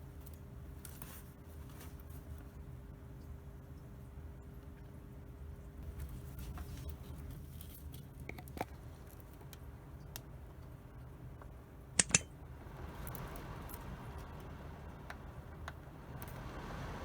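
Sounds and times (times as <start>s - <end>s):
low steady hum: 0.0s - 17.0s
sharp loud clicks: 12.0s - 12.3s
small scattered clicks: 12.0s - 12.3s
soft rising hiss: 12.3s - 17.0s.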